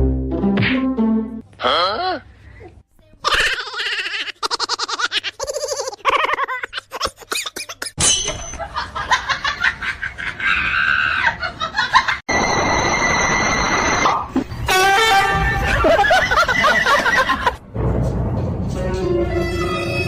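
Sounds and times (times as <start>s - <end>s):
person laughing hard: 3.6s - 8.0s, 15.4s - 17.6s.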